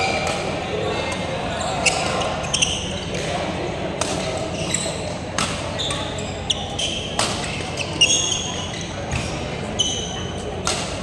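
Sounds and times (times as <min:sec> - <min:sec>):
sneakers squeaking on floor: 0:00.0 - 0:03.4, 0:04.2 - 0:10.9
racket striking shuttlecock: 0:04.0 - 0:04.3, 0:10.6 - 0:11.0.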